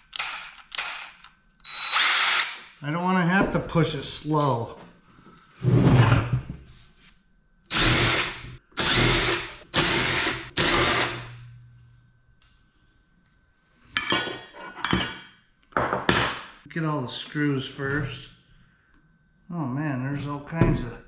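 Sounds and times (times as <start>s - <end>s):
electric drill motor whining: 0.1s - 2.6s, 7.7s - 11.4s.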